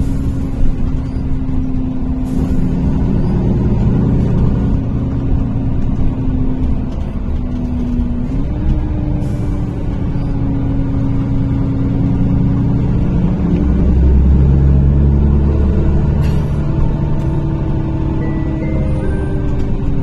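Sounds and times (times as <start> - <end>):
bus engine drone inside cabin: 0.0 - 20.0.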